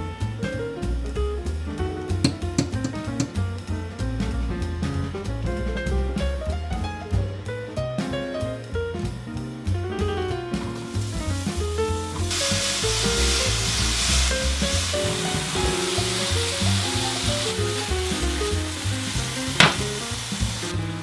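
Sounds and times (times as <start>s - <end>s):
soft background music: 6.3s - 21.0s
vegetables sizzling in oil: 10.6s - 20.8s.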